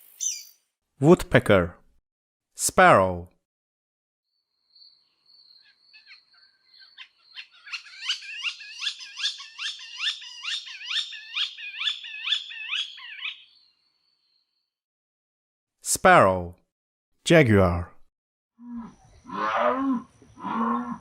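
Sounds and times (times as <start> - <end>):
sparrow chirping: 0.2 - 0.6, 4.7 - 14.3.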